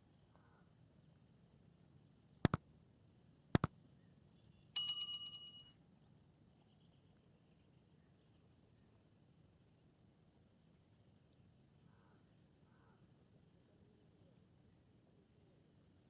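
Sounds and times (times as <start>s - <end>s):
small bell ringing: 4.8s - 5.8s.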